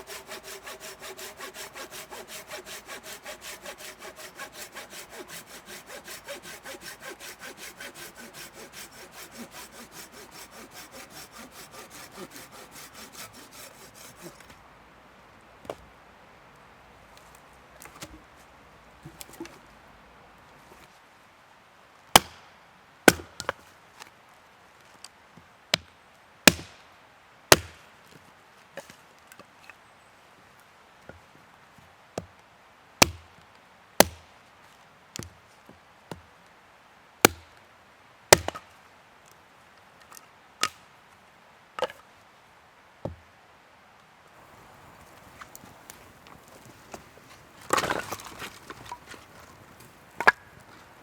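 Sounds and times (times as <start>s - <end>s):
firewood being chopped: 0.0s - 14.4s, 44.4s - 51.0s.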